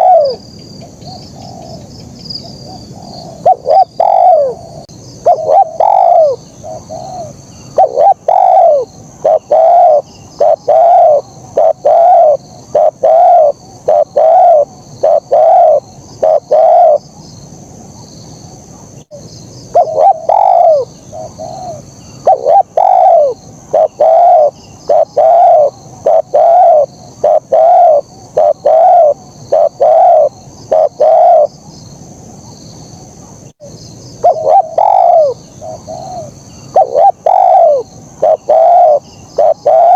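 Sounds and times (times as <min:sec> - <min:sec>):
dove cooing: 0:00.0 - 0:00.4, 0:01.1 - 0:01.8, 0:02.6 - 0:17.0, 0:19.7 - 0:31.5, 0:34.2 - 0:39.9
faint high-pitched hiss: 0:00.0 - 0:39.9.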